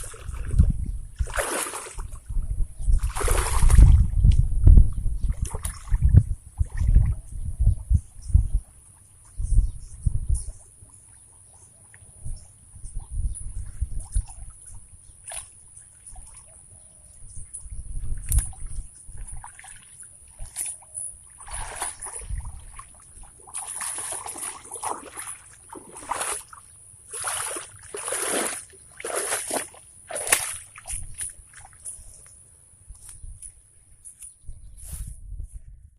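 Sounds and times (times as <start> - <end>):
water sloshing and splashing: 0.0 - 2.4, 3.0 - 4.1, 5.3 - 7.1, 18.0 - 32.0.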